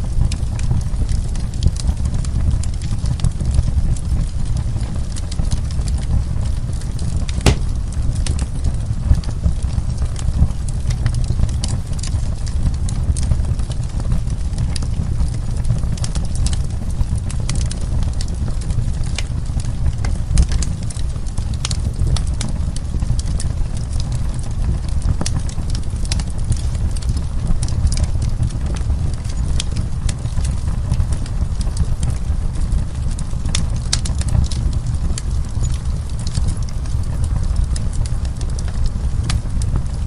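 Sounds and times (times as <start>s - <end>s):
wood fire crackling: 0.0s - 40.0s
sharp pops of fire: 7.3s - 8.7s.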